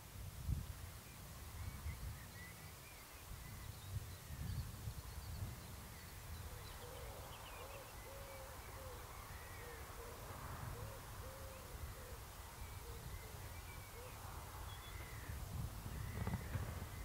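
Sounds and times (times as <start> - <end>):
small birds chirping: 1.0 - 10.2, 10.9 - 17.0
bird cooing: 6.4 - 15.4.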